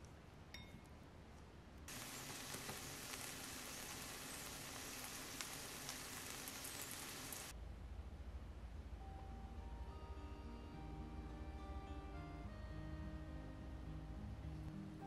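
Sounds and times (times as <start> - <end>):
zucchini sizzling in hot oil: 1.9 - 7.5.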